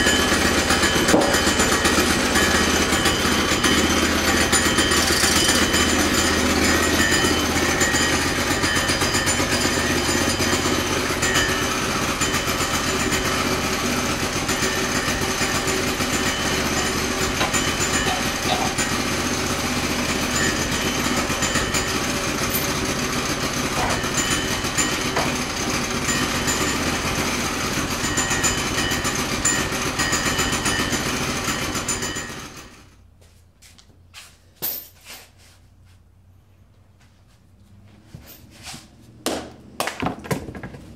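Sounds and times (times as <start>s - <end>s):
sawmill engine running: 0.0s - 33.1s
sharp knocks: 1.0s - 1.6s.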